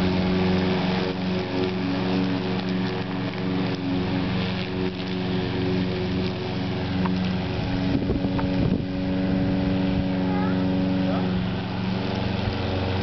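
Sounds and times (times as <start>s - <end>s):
lawn mower engine running: 0.0s - 13.0s.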